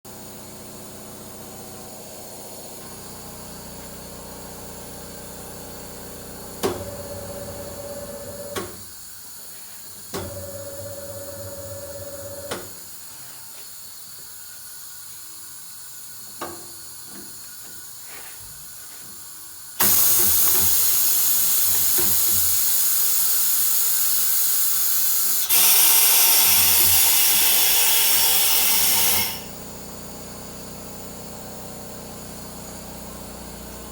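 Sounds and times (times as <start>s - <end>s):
compressed air hissing: 19.7s - 29.7s
machine motor whining: 25.5s - 29.6s.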